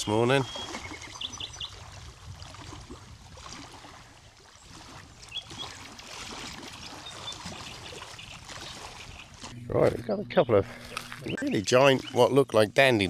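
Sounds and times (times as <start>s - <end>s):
bird chirps: 0.0s - 1.7s.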